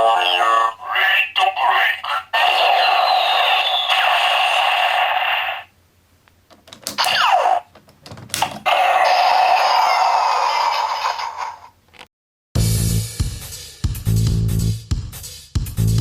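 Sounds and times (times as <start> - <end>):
tinny electronic toy sound effects: 0.0 - 5.7, 6.9 - 7.7, 8.4 - 11.7.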